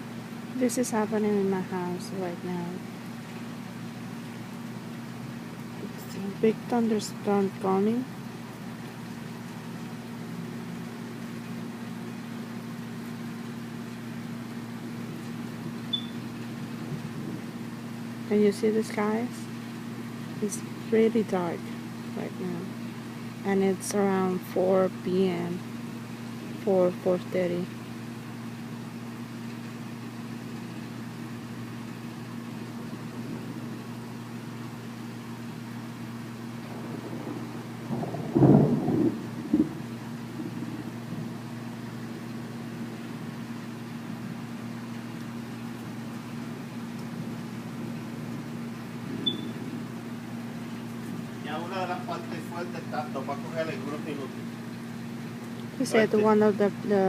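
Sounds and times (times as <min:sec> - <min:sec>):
faint noisy rumble: 0:00.0 - 0:57.0
low mechanical hum: 0:00.0 - 0:57.0
high chirp: 0:15.9 - 0:16.2, 0:49.2 - 0:49.6.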